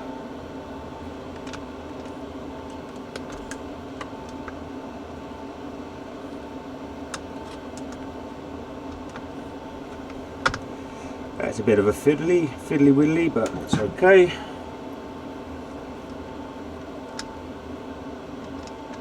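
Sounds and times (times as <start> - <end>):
background hum: 0.0 - 19.0
clicks of handling battery cables: 18.4 - 19.0.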